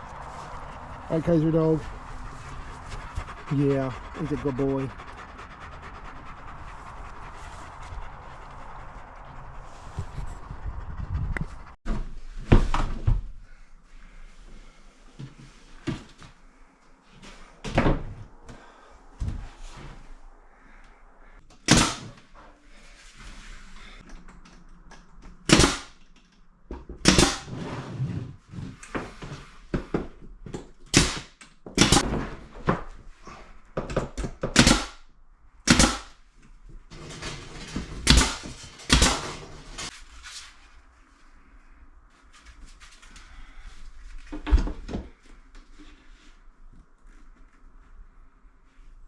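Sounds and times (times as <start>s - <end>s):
sharp knocks and bangs: 35.7s - 36.1s, 38.0s - 39.4s.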